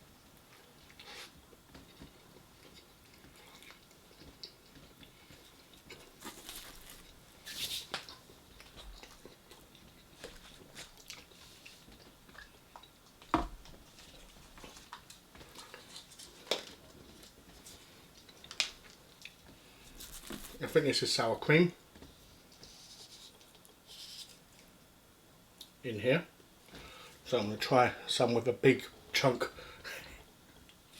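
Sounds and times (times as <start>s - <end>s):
person chewing fried food: 0.5s - 20.6s.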